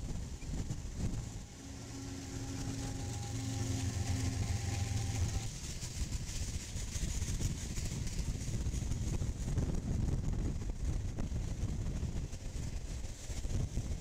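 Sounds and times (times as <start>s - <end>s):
freight cars rolling on rails: 0.0s - 9.9s
diesel locomotive engine hum: 0.0s - 14.0s.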